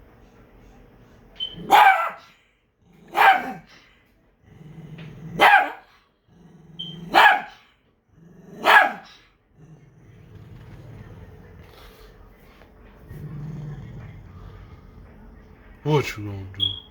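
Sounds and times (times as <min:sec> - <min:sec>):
dog barking: 0:01.4 - 0:02.3, 0:03.0 - 0:03.7, 0:05.3 - 0:05.9, 0:06.8 - 0:07.6, 0:08.5 - 0:09.2
dog growling: 0:02.8 - 0:03.7, 0:04.4 - 0:15.8.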